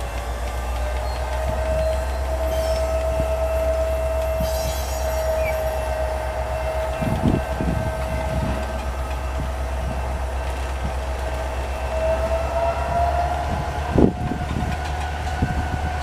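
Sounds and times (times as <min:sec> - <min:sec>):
freight train rumbling past: 0:00.0 - 0:16.0
high wheel squeal: 0:00.6 - 0:09.4.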